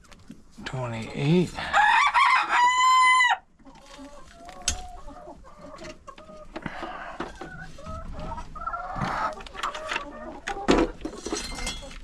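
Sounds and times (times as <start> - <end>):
hens clucking: 0.0 - 12.0
rooster crow: 1.6 - 3.4.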